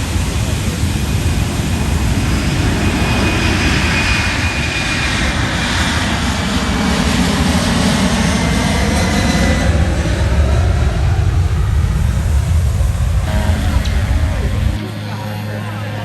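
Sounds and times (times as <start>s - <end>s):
jet engines roaring: 0.0s - 16.0s
faint high whine: 12.9s - 16.0s.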